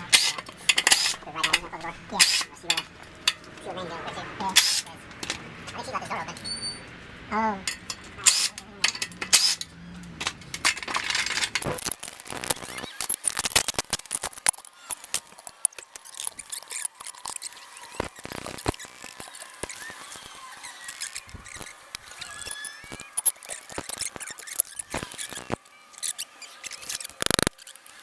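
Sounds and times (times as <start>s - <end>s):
metal clicks and clinks: 0.0s - 3.7s, 4.5s - 5.8s, 7.6s - 12.2s
faint squeaks: 0.0s - 11.8s
short metal rattling: 7.6s - 11.8s.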